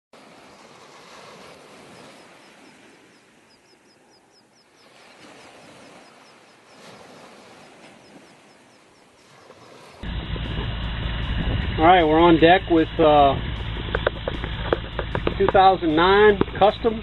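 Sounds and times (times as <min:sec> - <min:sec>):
outdoor ambient noise: 0:00.2 - 0:17.0.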